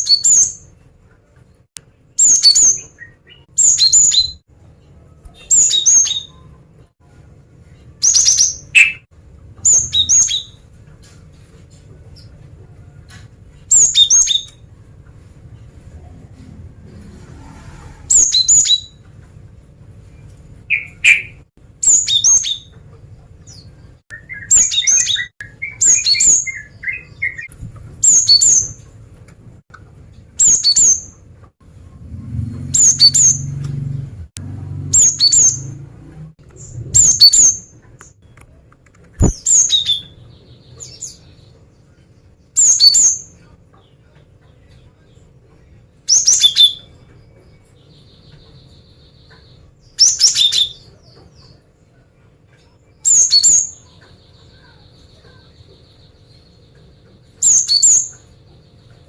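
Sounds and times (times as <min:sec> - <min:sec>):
soft low bird twittering: 0:07.8 - 0:10.6, 0:36.5 - 0:38.1, 0:52.6 - 0:59.0
low rumble: 0:14.8 - 0:20.7.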